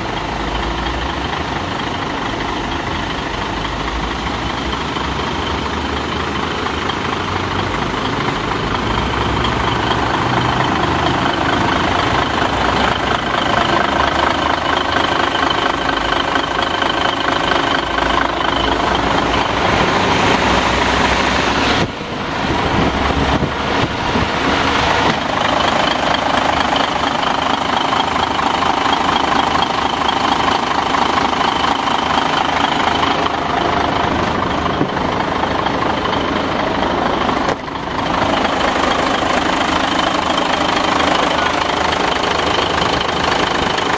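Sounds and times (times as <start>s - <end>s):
diesel truck engine idling: 0.0s - 43.9s.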